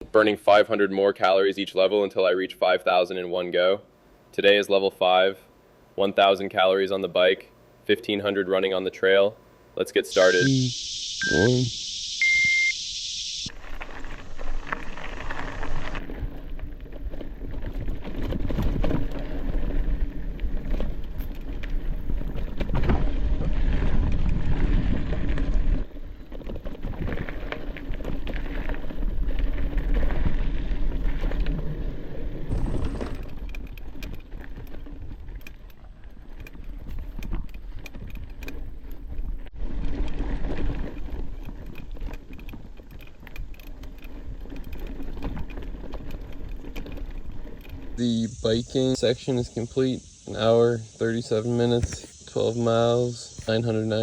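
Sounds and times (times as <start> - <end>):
bike tyre noise: 10.1 - 54.0
bike rattling on rough ground: 13.5 - 49.4.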